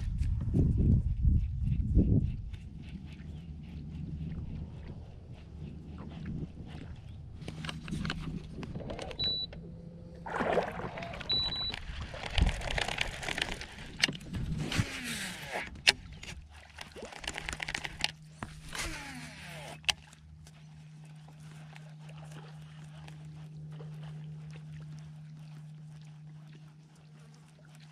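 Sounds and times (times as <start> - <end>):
steady low hum: 0.0 - 27.9
fishing gear clicks and rustling: 5.2 - 9.7, 11.0 - 25.8
brief high beeps: 11.0 - 11.8.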